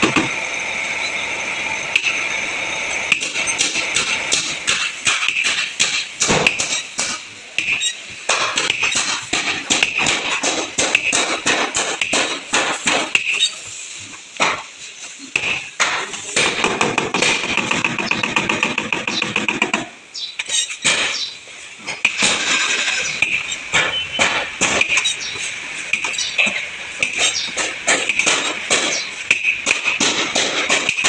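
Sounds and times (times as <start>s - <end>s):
hammer blows on sheet steel: 3.1s - 13.6s, 22.0s - 31.0s.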